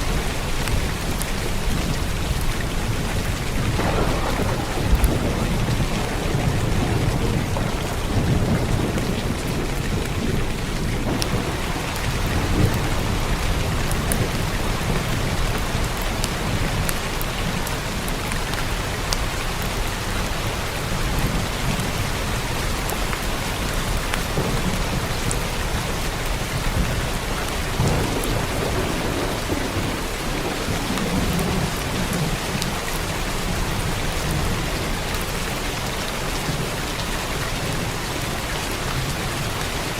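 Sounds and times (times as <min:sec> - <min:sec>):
heavy rain on a roof: 0:00.0 - 0:39.9
low thunder rumbling: 0:00.0 - 0:39.9.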